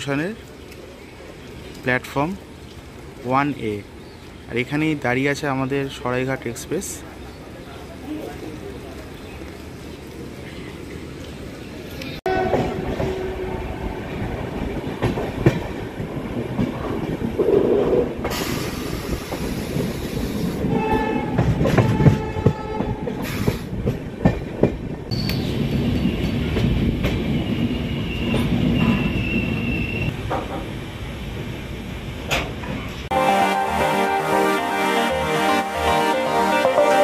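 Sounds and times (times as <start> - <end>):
train rumbling on rails: 10.8 - 34.6
train horn: 12.3 - 13.7, 20.7 - 23.0, 33.1 - 37.0.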